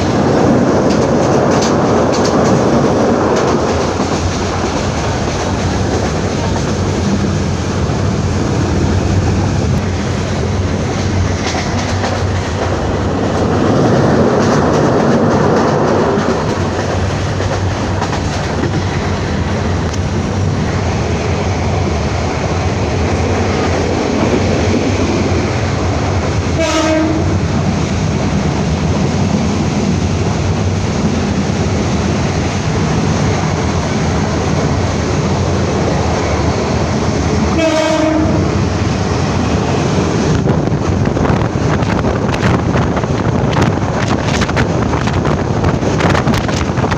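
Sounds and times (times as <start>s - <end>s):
train rumbling on track: 0.0s - 46.9s
train horn blast: 26.5s - 27.4s, 37.5s - 38.6s.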